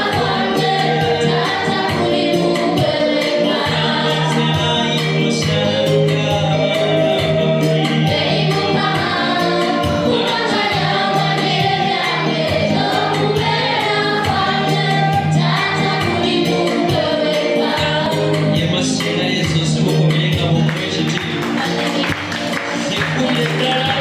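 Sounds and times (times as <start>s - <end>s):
choir singing: 0.0s - 19.4s
quick percussion beat: 18.6s - 24.0s.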